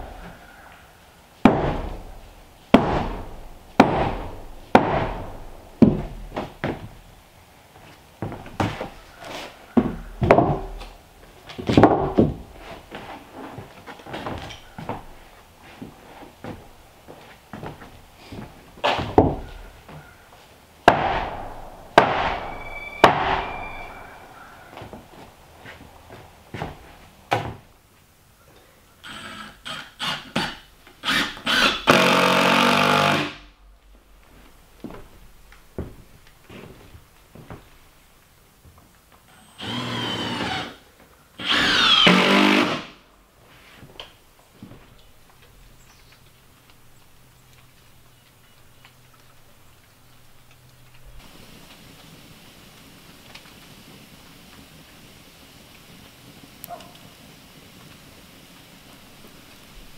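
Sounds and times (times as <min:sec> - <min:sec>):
wooden thunks and knocks: 0:01.4 - 0:07.1, 0:09.8 - 0:10.8, 0:11.6 - 0:12.6, 0:18.8 - 0:20.0
power tool motor running: 0:31.0 - 0:33.4, 0:39.3 - 0:40.8, 0:41.4 - 0:42.9.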